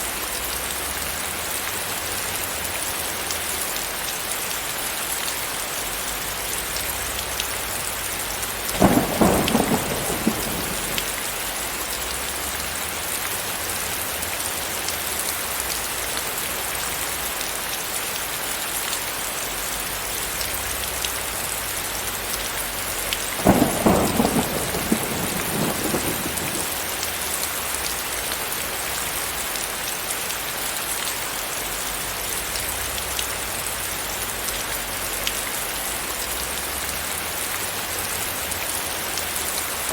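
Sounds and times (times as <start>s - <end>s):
heavy rain hissing: 0.0s - 39.9s
thunder rolling: 8.7s - 11.7s, 23.4s - 27.0s.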